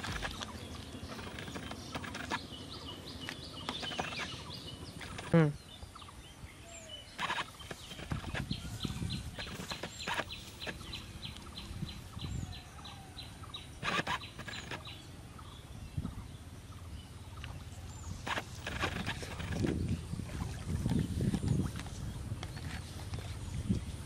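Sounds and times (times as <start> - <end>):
rustling: 0.0 - 2.4, 7.2 - 11.5, 13.8 - 14.9, 18.2 - 19.8
outdoor ambience: 0.0 - 24.0.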